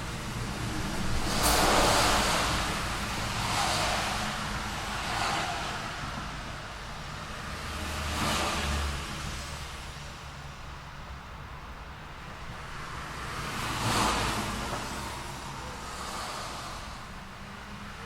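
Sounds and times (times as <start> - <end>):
cars passing: 0.0 - 18.0
low traffic rumble: 0.0 - 18.0.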